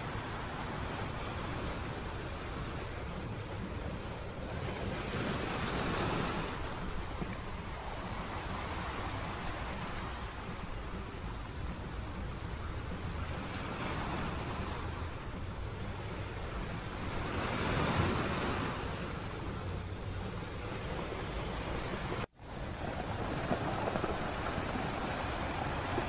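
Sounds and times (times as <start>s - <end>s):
sea waves breaking on beach: 0.0s - 26.0s
wind rumbling on microphone: 0.0s - 26.0s.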